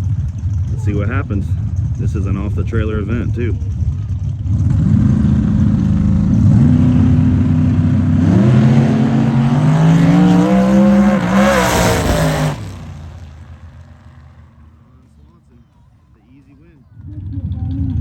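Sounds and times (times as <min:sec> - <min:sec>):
drag race cars accelerating: 0:00.0 - 0:14.8.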